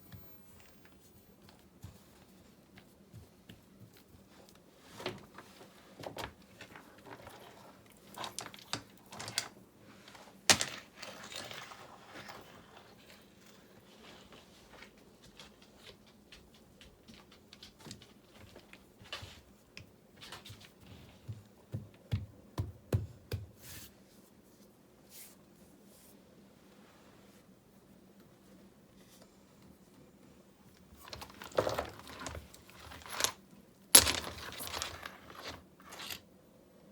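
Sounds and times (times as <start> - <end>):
stones and mortar clicks and scrapes: 34.0 - 36.2.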